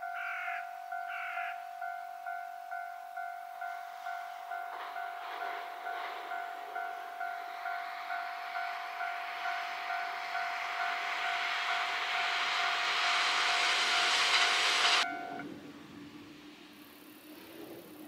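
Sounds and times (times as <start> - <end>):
level-crossing bell ringing: 0.0 - 12.9
electric train approaching: 0.0 - 18.0.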